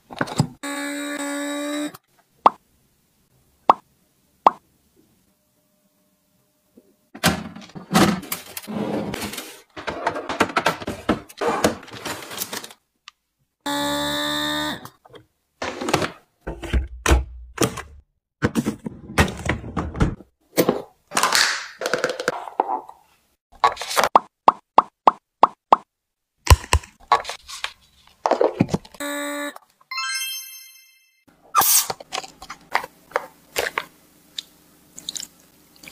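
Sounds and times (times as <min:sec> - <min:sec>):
packaging rustling: 0:11.7 - 0:12.8.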